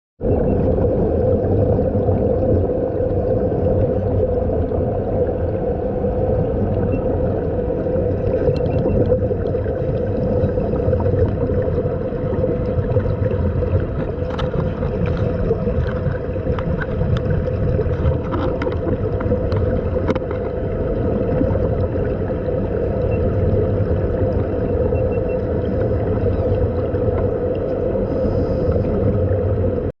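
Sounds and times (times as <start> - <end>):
constant hum: 0.2 - 29.9
muffled underwater rush: 0.2 - 29.9.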